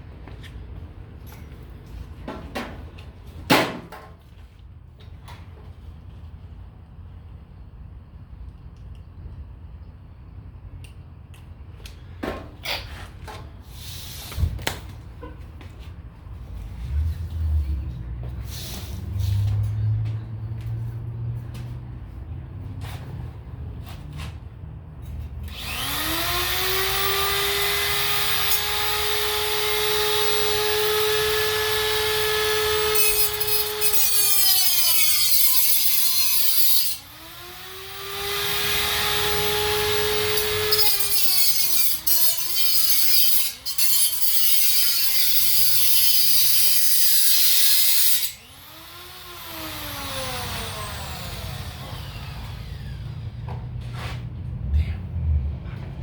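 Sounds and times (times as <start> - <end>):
angle grinder motor whine: 25.5 - 35.4, 36.8 - 42.6, 48.2 - 53.6
grinding disc on steel: 25.6 - 52.7.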